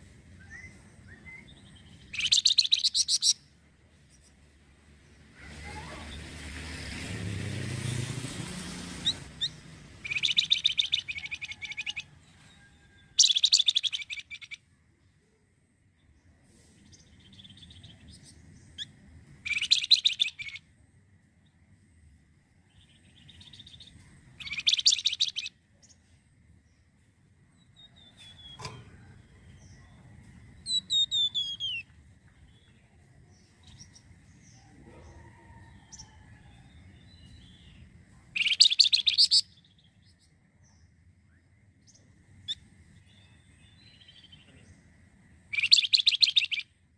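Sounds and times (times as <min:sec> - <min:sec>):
songbird chirping: 0:00.0 - 0:46.9
soft high chirps: 0:00.3 - 0:03.5, 0:09.0 - 0:12.1, 0:13.2 - 0:14.6, 0:23.2 - 0:26.0, 0:27.6 - 0:32.6, 0:38.4 - 0:40.2, 0:45.5 - 0:46.8
songbird whistled notes: 0:00.4 - 0:03.4, 0:09.0 - 0:12.0, 0:30.6 - 0:31.9, 0:38.4 - 0:39.5, 0:45.5 - 0:46.7.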